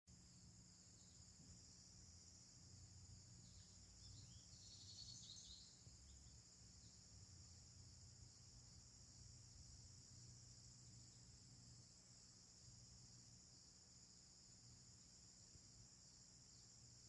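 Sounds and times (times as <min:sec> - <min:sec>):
crickets chirping: 0:00.1 - 0:17.0
bird chirping: 0:03.4 - 0:07.0.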